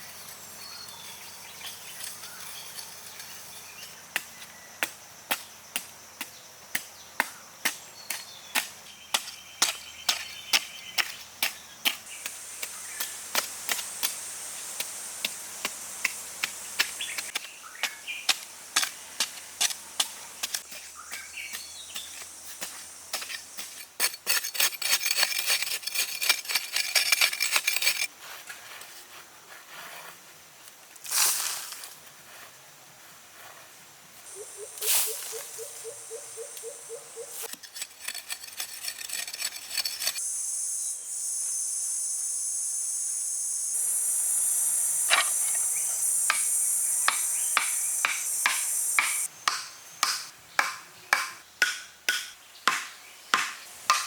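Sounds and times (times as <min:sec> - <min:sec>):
jungle insects: 0:00.0 - 0:28.4, 0:29.2 - 0:54.0
birds: 0:34.3 - 0:37.5
hand tool striking: 0:37.4 - 0:40.2, 0:47.1 - 0:54.0.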